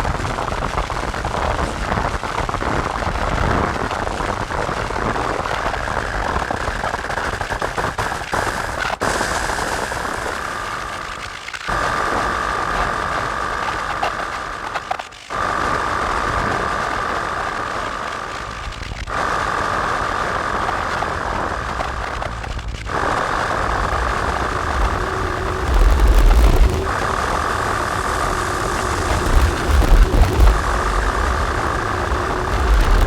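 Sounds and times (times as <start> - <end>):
distorted synth noise drone: 17.2 - 33.0
low pulses: 18.5 - 33.0.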